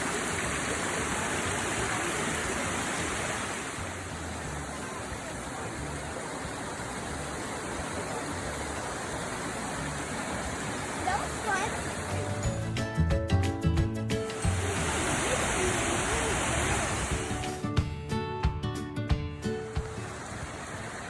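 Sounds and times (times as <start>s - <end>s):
waterfall rushing: 0.0s - 12.6s, 14.2s - 17.6s, 19.6s - 21.0s.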